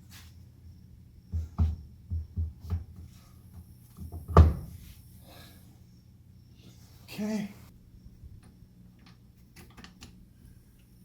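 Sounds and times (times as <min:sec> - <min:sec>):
dull metal knocks and clunks: 0:01.3 - 0:03.1, 0:04.0 - 0:04.8.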